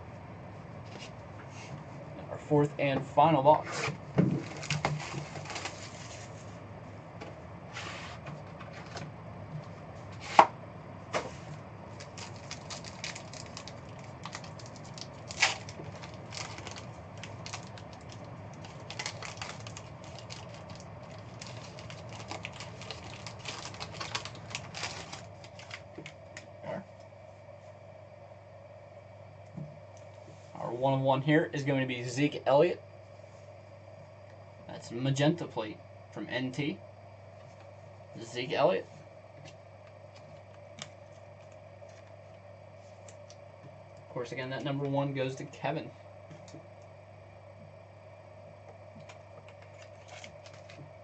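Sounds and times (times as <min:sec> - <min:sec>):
cards and packaging handled: 0:04.3 - 0:06.3, 0:12.0 - 0:26.1, 0:49.0 - 0:50.8.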